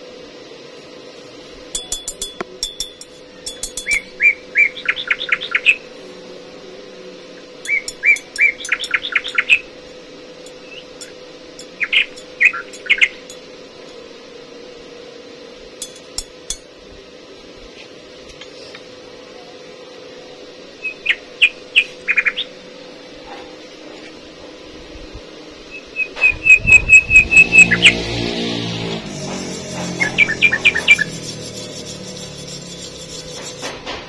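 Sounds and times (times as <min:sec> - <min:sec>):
faint steady hum: 0:00.0 - 0:33.9
songbird chirping: 0:07.7 - 0:09.7, 0:10.5 - 0:13.3.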